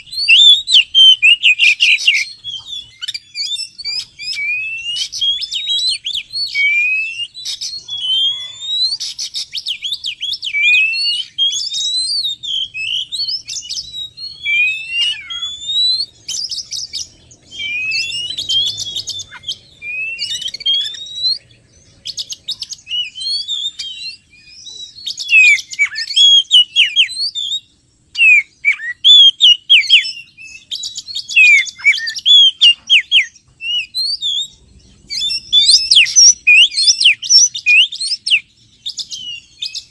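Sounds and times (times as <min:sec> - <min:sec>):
bird singing varied whistles: 0:00.0 - 0:39.9.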